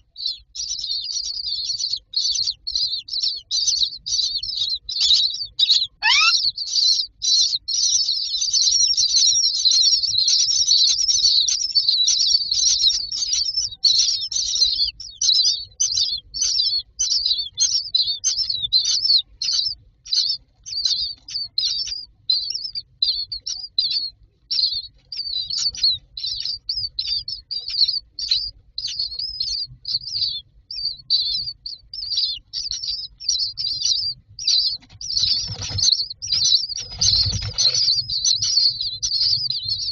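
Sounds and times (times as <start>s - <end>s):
chicks chirping: 0.0s - 39.9s
single rising bird call: 6.0s - 6.4s.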